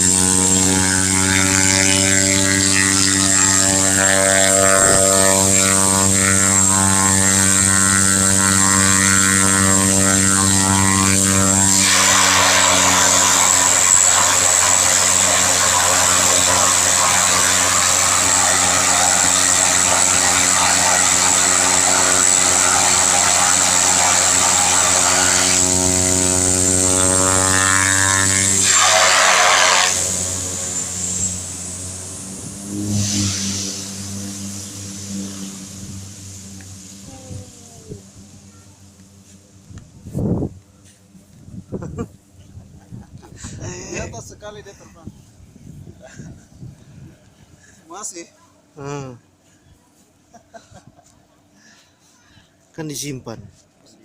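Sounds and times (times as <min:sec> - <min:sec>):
loud rushing noise: 0:00.0 - 0:40.6
propeller plane engine droning: 0:00.0 - 0:47.9.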